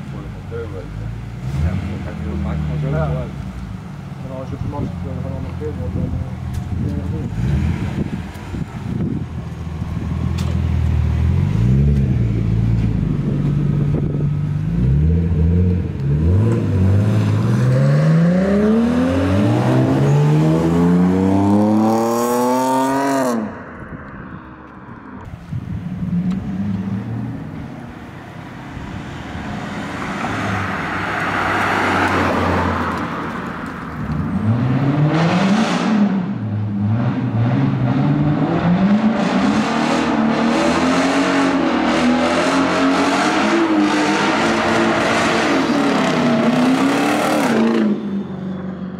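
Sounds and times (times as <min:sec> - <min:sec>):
car engine revving: 0:00.2 - 0:03.4, 0:09.9 - 0:23.6, 0:34.0 - 0:48.3
car passing: 0:14.8 - 0:48.9.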